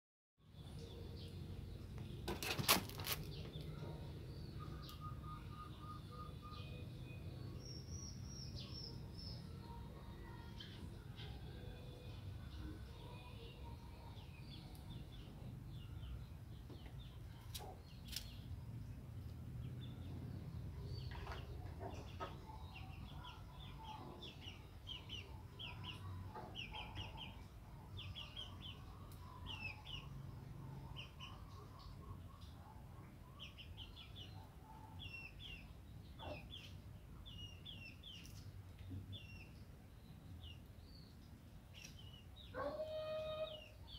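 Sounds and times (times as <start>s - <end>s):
small birds chirping: 12.4s - 43.9s.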